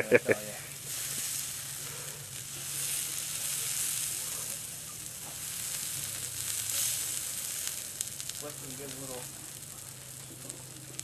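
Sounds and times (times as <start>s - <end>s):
chicken sizzling on a grill: 0.0s - 11.0s.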